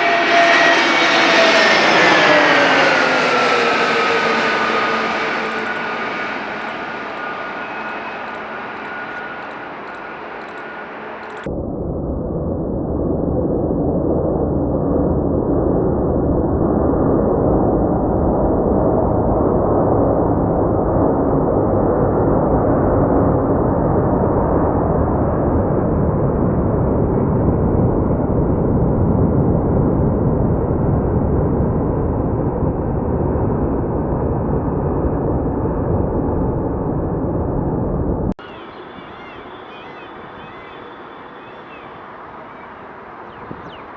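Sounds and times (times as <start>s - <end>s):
jet engines roaring: 0.0s - 28.7s, 29.3s - 43.9s.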